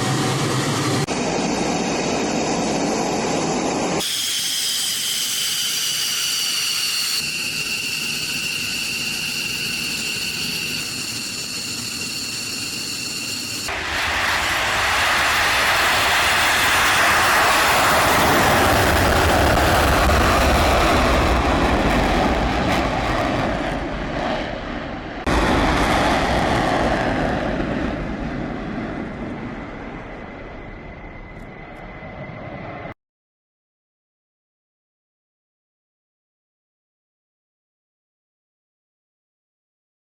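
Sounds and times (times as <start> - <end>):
fighter jet engines roaring: 0.0 - 33.0
jet passing: 6.1 - 33.0.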